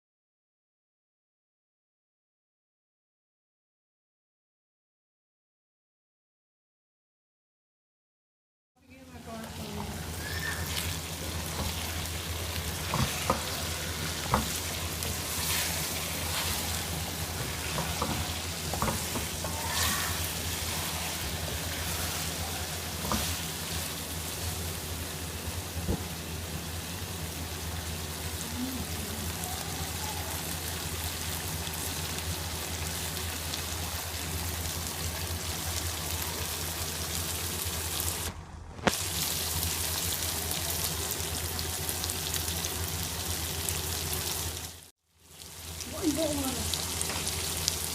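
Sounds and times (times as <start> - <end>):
food sizzling in a pan: 9.1 - 38.3, 38.9 - 47.9.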